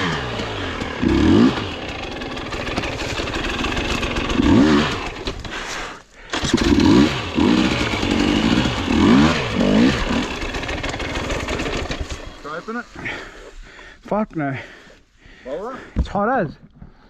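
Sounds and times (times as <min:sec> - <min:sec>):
dirt bike engine revving: 0:00.0 - 0:13.3.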